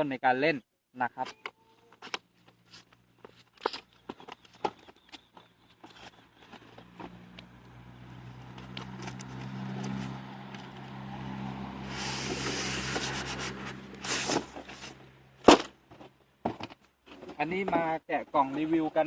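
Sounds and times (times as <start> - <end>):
cardboard box being handled: 11.9 - 15.0.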